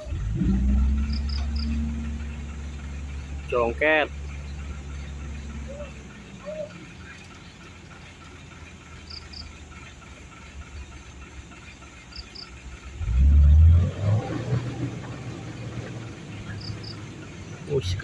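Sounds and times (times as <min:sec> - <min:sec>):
diesel truck engine revving: 0:00.0 - 0:18.0
insect chirping: 0:00.7 - 0:13.0, 0:14.9 - 0:18.0.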